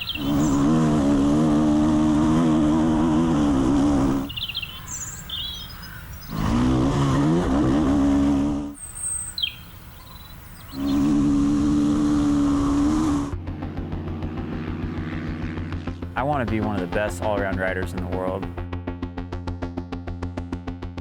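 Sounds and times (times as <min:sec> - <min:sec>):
birds chirping: 0:00.0 - 0:00.8, 0:03.7 - 0:06.6, 0:08.2 - 0:11.2, 0:16.2 - 0:18.5
dirt bike engines revving: 0:00.0 - 0:18.6.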